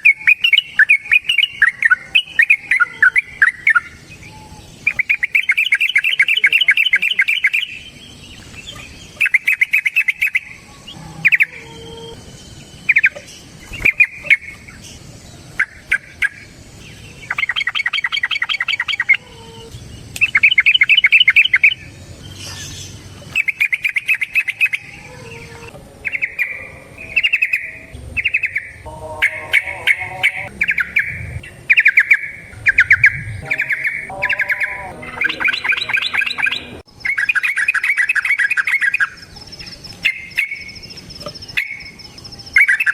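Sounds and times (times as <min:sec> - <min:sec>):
bulbul singing bubbling phrases: 0:00.0 - 0:07.9, 0:23.3 - 0:38.8.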